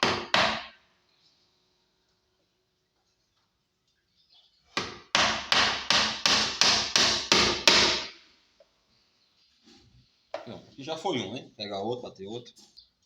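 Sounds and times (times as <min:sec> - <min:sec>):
hammer striking nail into wood: 0:00.0 - 0:00.8, 0:04.8 - 0:08.2.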